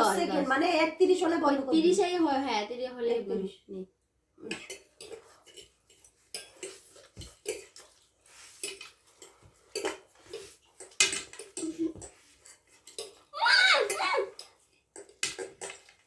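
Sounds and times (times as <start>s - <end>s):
cutlery clinking against plates: 4.4s - 16.0s.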